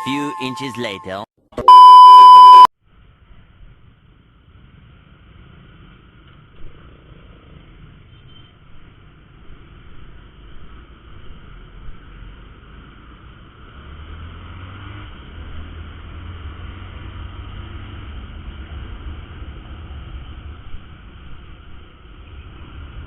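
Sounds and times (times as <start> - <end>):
road noise hiss: 2.8 - 23.0.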